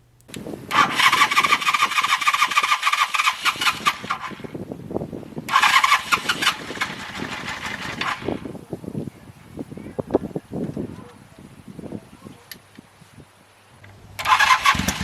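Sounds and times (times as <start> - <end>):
electric starter cranking engine: 0.3 - 4.6, 5.5 - 8.5, 13.9 - 15.0
uneven low engine pulses: 13.8 - 15.0.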